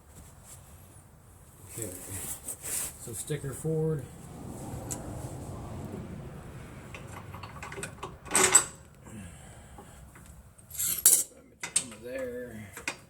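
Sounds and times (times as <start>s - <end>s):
metal control arm clunking and scraping: 6.9s - 8.9s.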